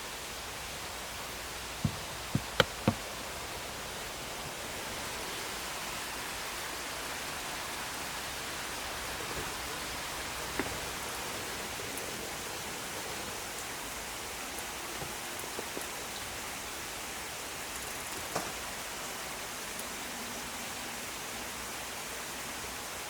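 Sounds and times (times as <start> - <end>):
sharp knocks: 1.8 - 3.1.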